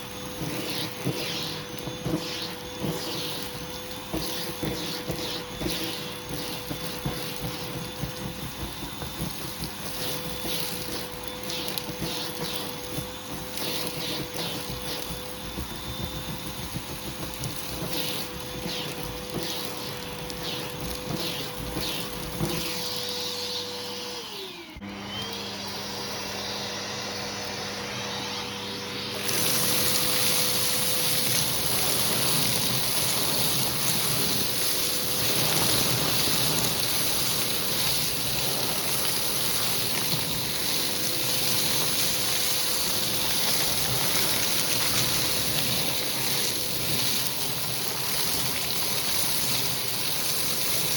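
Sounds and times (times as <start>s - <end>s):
air rushing through vacuum hose: 0.0s - 24.7s, 26.1s - 50.9s
vacuum cleaner motor whine: 0.0s - 50.9s.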